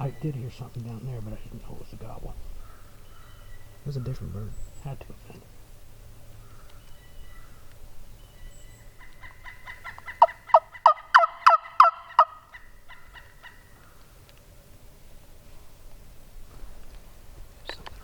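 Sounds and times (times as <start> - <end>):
turkey yelping: 8.8 - 14.0.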